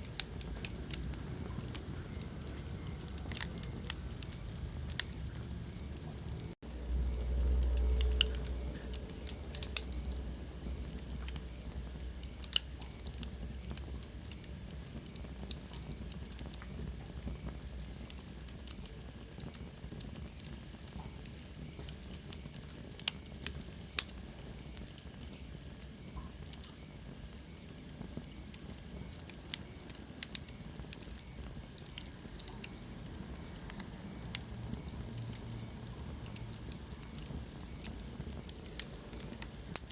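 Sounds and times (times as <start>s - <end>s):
wood fire crackling: 0.0s - 39.9s
low rumble: 0.6s - 12.2s.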